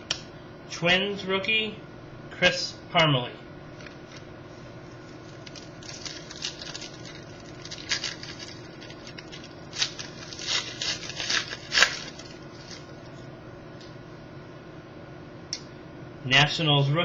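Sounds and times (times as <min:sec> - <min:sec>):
cards and packaging crinkling: 0:03.8 - 0:13.1.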